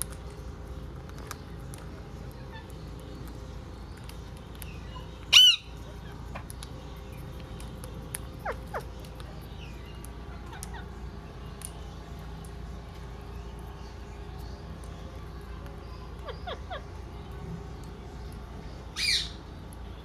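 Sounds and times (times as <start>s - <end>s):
steady low hum: 0.0s - 20.0s
parrot squawking: 5.3s - 6.5s, 16.2s - 16.9s, 19.0s - 19.4s.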